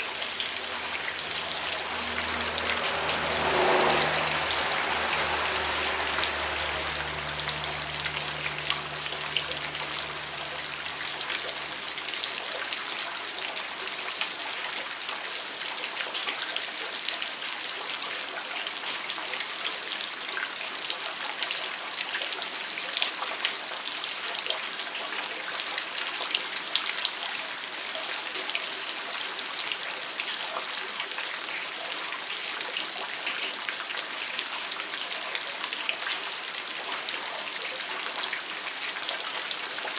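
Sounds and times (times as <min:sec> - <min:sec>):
low hum: 0:00.0 - 0:12.4
rain drops ticking: 0:00.0 - 0:12.8.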